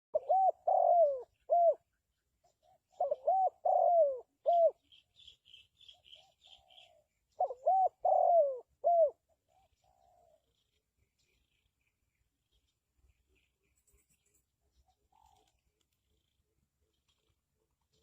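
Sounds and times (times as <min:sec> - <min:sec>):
dove cooing: 0:00.2 - 0:05.0, 0:06.0 - 0:10.7, 0:14.7 - 0:18.0
faint high bird chirps: 0:00.2 - 0:16.4.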